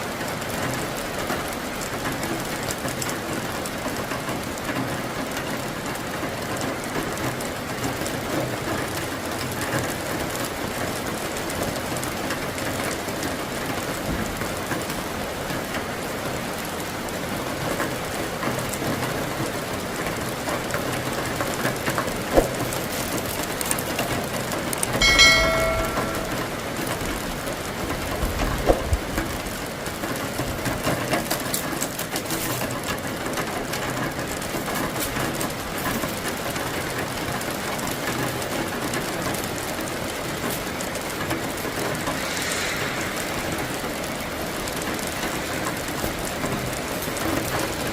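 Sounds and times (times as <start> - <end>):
steady rain hiss: 0.0 - 47.9
brief pitched tone: 25.0 - 27.2.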